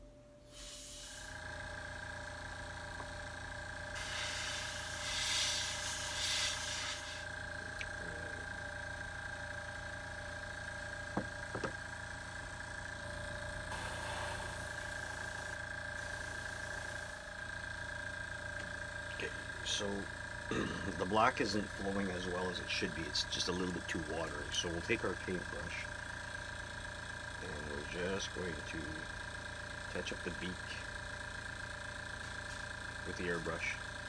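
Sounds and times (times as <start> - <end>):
airbrush compressor humming: 0.4 - 34.0
airbrush spraying hiss: 0.5 - 1.4, 3.9 - 7.3, 13.7 - 17.4.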